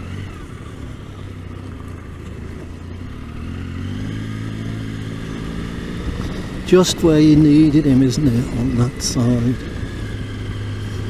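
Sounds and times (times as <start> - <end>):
car approaching fast: 0.0 - 11.0
motorcycle engine running: 0.0 - 11.0.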